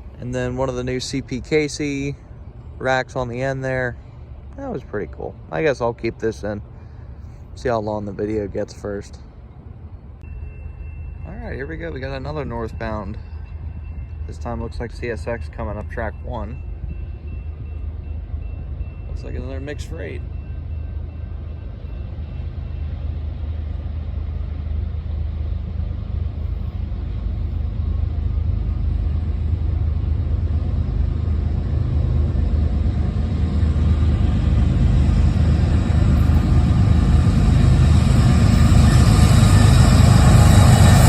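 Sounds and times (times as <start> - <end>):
diesel locomotive engine rumble: 0.0 - 41.0
high-pitched train noise: 0.0 - 41.0.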